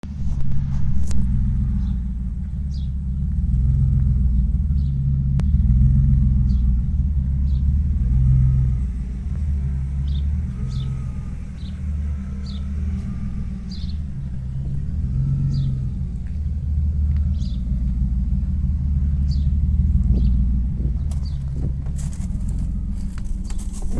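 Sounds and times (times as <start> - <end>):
car engine running: 0.0 - 23.9.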